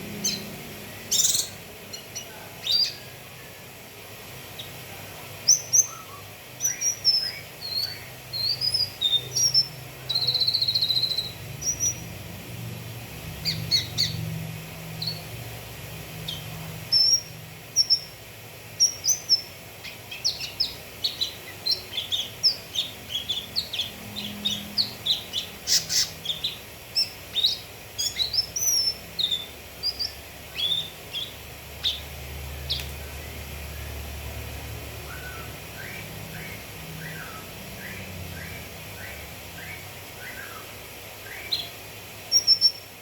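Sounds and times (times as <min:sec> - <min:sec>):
bird chirps and whistled notes: 0:05.5 - 0:12.0, 0:42.3 - 0:42.9.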